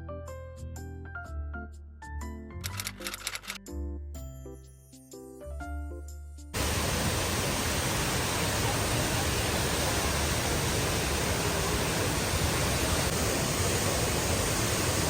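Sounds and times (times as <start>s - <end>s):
background music: 0.0s - 6.6s
waterfall rushing: 6.6s - 15.0s.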